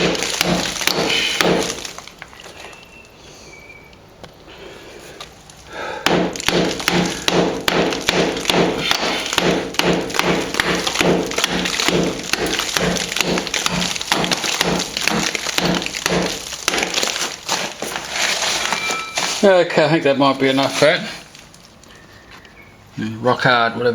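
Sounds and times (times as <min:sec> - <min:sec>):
hammer striking chisel on plaster: 0:00.0 - 0:01.9, 0:06.0 - 0:17.1.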